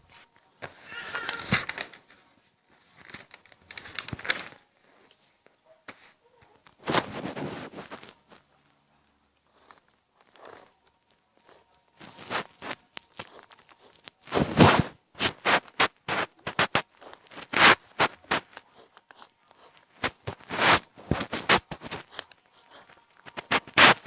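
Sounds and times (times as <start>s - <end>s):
drawing tool scratching on paper: 11.4s - 24.0s.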